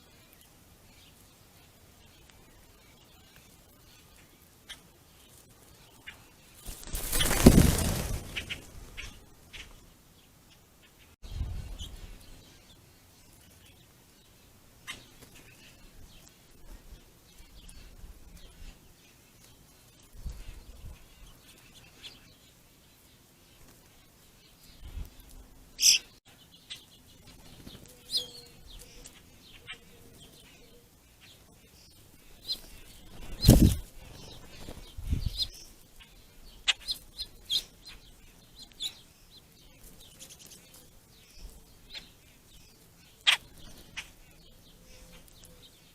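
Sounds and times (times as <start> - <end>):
songbirds chirping: 0.0 - 45.9
wing flutters: 6.5 - 9.8, 32.4 - 35.8.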